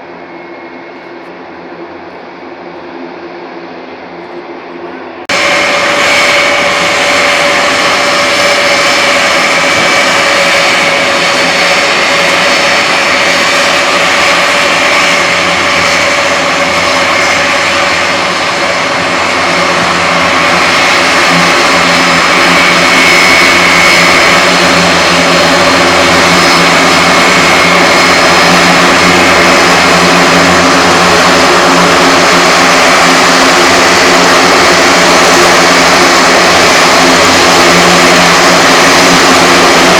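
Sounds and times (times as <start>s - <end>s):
turboprop engines roaring: 0.0s - 39.9s.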